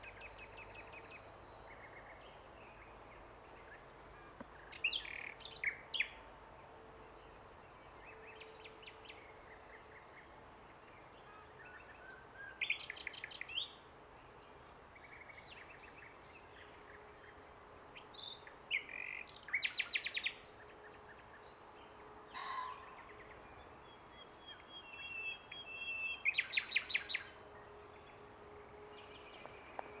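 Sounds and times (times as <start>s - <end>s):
nightingale singing: 3.6s - 6.2s, 10.9s - 13.8s, 18.0s - 21.6s, 22.4s - 28.2s.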